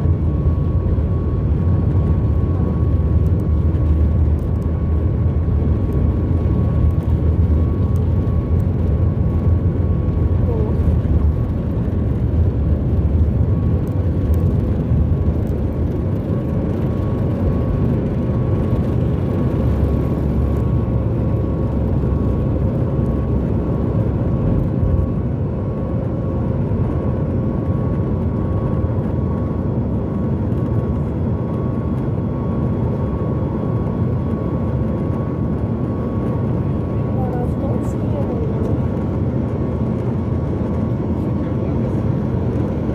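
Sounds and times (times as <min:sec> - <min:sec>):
airplane cabin engine rumble: 0:00.0 - 0:42.9.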